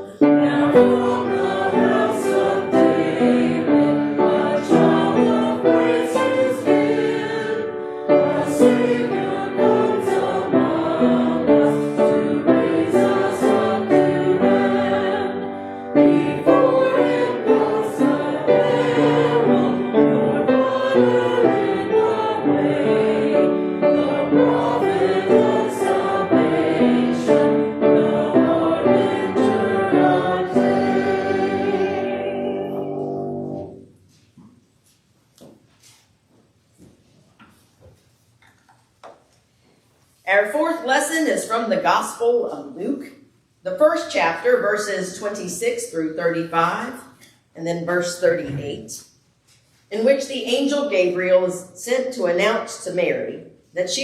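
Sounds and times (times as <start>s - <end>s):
congregation singing a hymn: 0.0s - 34.0s, 48.2s - 48.9s.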